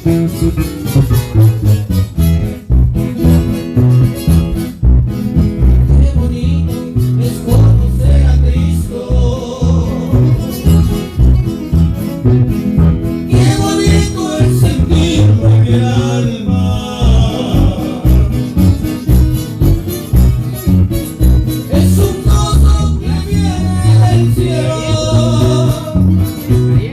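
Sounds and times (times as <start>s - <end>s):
guitars playing: 0.0s - 26.9s
pulsing bass beat: 0.0s - 26.9s
person singing: 5.8s - 11.1s, 13.3s - 18.8s, 21.6s - 26.9s.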